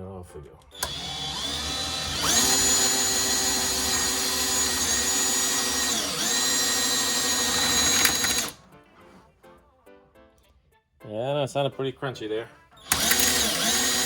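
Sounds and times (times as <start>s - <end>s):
electric drill cutting metal: 0.8s - 8.6s, 12.8s - 14.0s.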